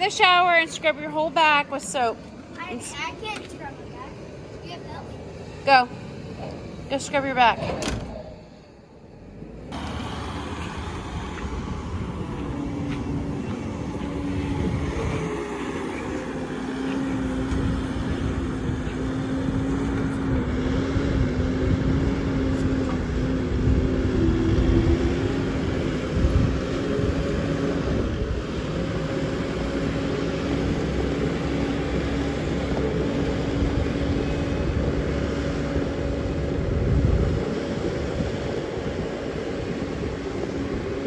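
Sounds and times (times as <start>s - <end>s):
skid steer engine running: 8.5s - 41.0s.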